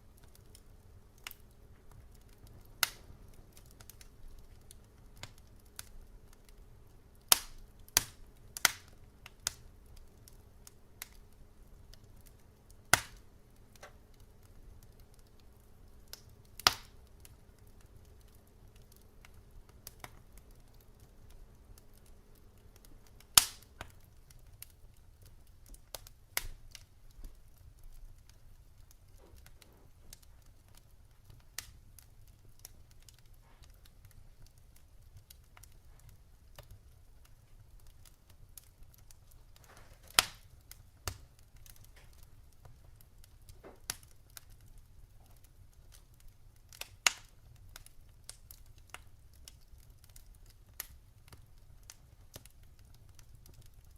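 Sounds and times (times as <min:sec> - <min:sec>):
faint steady hum: 0:00.0 - 0:53.9
wood fire crackling: 0:00.0 - 0:53.9.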